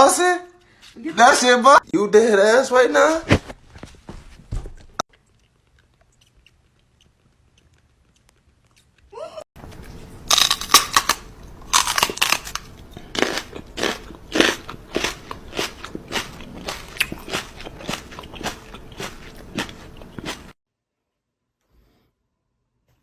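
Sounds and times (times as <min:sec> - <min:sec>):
crunchy food being chewed: 0:05.0 - 0:20.6.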